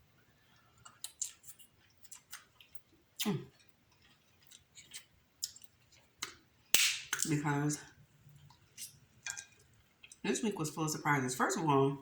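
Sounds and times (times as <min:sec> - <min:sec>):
crab shells cracking and chewing: 0:00.6 - 0:07.4, 0:08.4 - 0:10.2.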